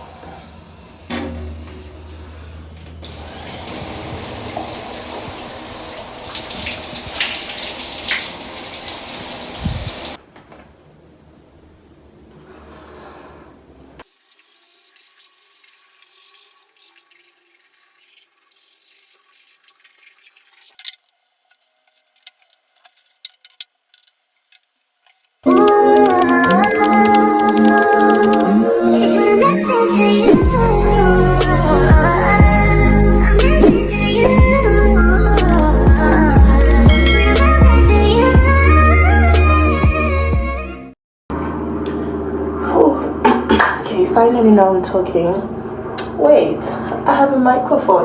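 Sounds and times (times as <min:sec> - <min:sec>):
water running: 0:00.3 - 0:10.2, 0:14.0 - 0:20.8, 0:41.3 - 0:48.0.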